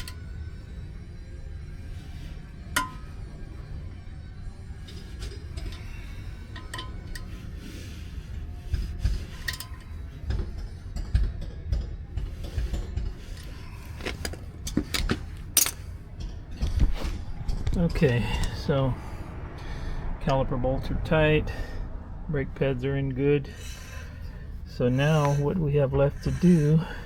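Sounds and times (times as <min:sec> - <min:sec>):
low steady rumble: 0:00.0 - 0:27.0
metal tools clinking on steel: 0:04.8 - 0:07.4, 0:13.3 - 0:16.3.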